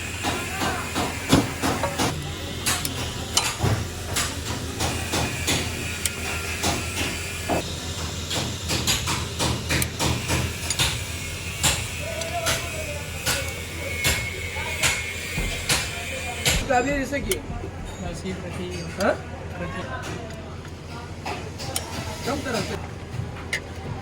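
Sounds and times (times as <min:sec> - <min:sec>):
hand tools clicking on car parts: 0:00.2 - 0:07.6, 0:08.3 - 0:16.6.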